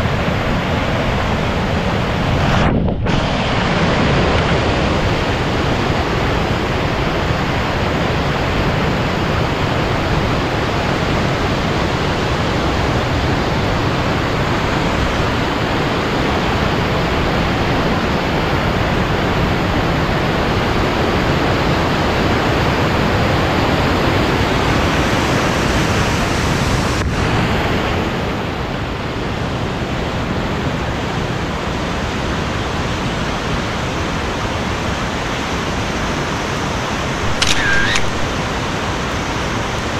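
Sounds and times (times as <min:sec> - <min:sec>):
water rushing through gorge: 0:00.0 - 0:39.9
faint click: 0:37.3 - 0:38.3.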